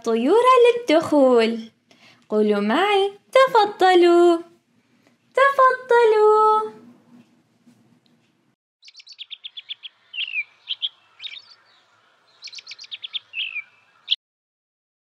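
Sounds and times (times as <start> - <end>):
songbird chirping: 8.8 - 14.2.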